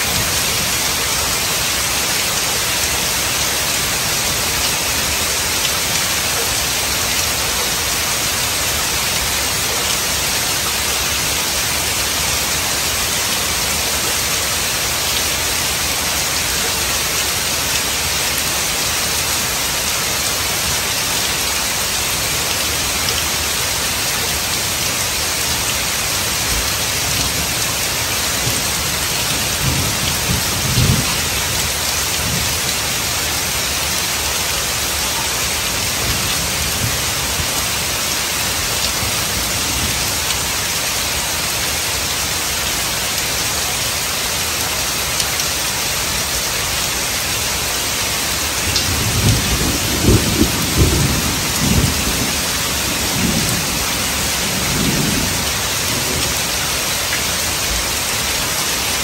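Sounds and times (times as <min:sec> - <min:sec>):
heavy rain on pavement: 0:00.0 - 0:59.0
thunder rumbling: 0:48.8 - 0:56.2.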